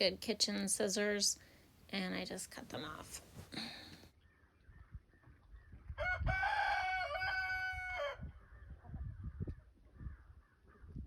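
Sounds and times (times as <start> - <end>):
rooster crowing: 6.0 - 8.3.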